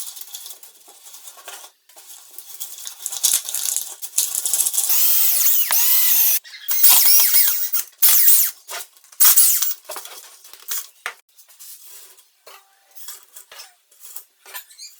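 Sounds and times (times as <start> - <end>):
squeaky scraping: 4.8 - 8.5, 9.2 - 9.8.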